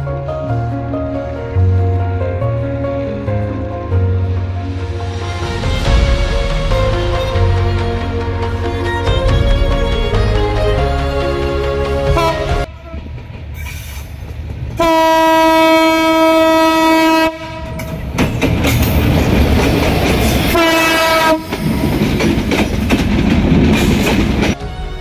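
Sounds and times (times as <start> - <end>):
rumble and clatter of moving train: 0.0 - 25.0
diesel locomotive horn blasts: 12.0 - 13.1, 14.8 - 17.8, 20.5 - 21.6.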